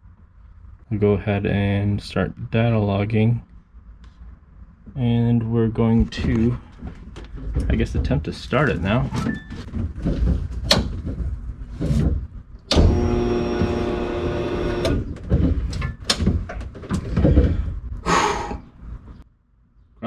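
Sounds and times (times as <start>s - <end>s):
sharp clicks and knocks: 9.2s - 17.6s
fuel pump whining: 11.8s - 18.6s.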